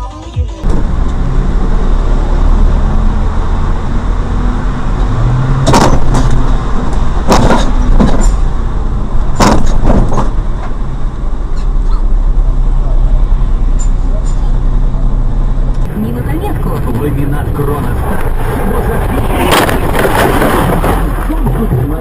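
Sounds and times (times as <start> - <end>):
car road and engine rumble: 0.6 - 22.0
sharp knocks: 5.6 - 6.4, 7.2 - 8.4, 9.4 - 10.4.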